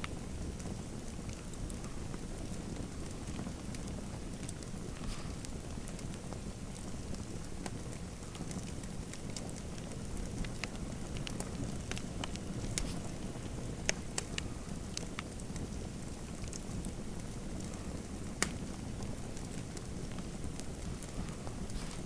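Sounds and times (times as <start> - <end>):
fire crackling and popping: 0.0 - 22.0
low rush of burning: 1.6 - 9.2, 9.8 - 22.0.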